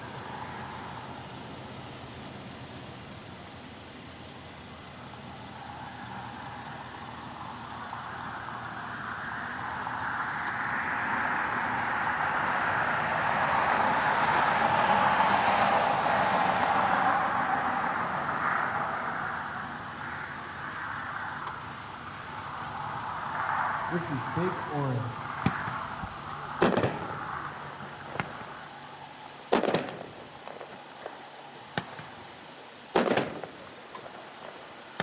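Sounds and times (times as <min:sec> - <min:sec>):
vehicle passing by: 0:05.6 - 0:30.0.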